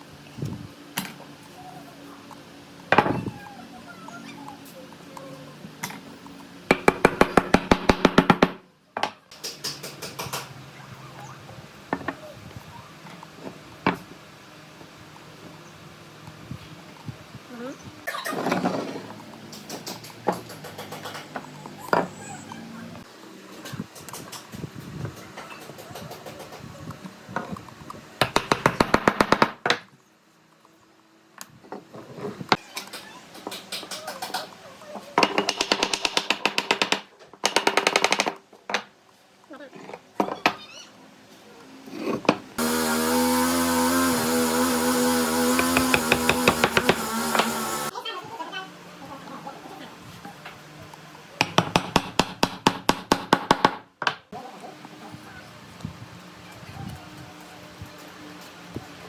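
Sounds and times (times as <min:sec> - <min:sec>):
rapid sharp knocks: 0:06.7 - 0:08.6, 0:45.5 - 0:47.6, 0:51.4 - 0:53.8
fast run of sharp knocks: 0:45.2 - 0:47.9.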